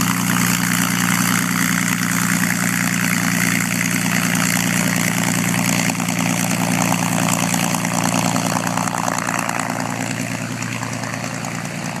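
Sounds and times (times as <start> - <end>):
propeller aircraft engine idling: 0.0 - 12.0.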